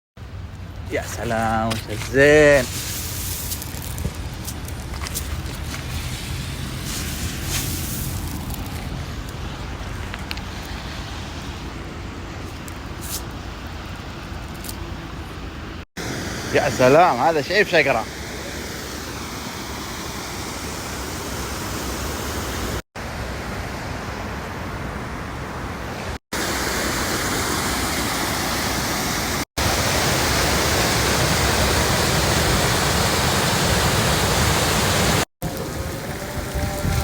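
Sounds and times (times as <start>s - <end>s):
heavy downpour rushing: 31.4s - 37.0s.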